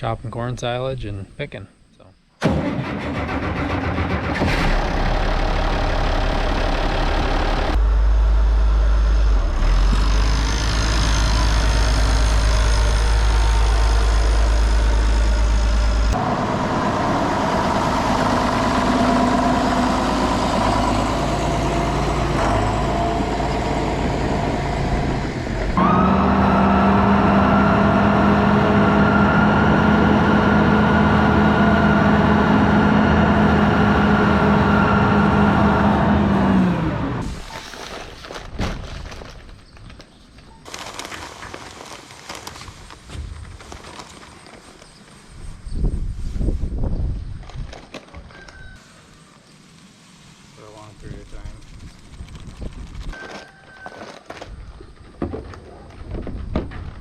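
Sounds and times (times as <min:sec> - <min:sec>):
tractor diesel engines running: 0:02.4 - 0:37.9.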